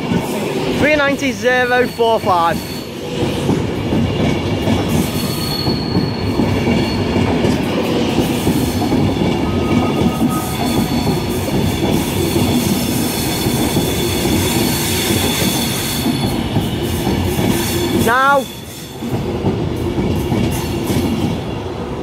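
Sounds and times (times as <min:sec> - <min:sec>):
train wheels rumbling on rail: 0:00.0 - 0:22.0
high-pitched wheel squeals: 0:05.0 - 0:07.3.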